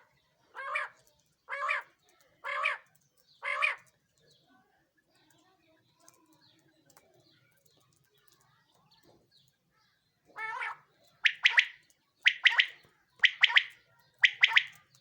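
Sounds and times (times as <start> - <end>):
quail calling: 0.0 - 3.9, 10.4 - 14.9.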